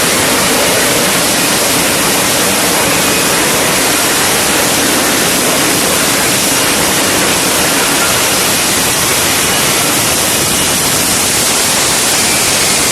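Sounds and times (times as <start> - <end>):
jet engine roaring: 0.0 - 12.9.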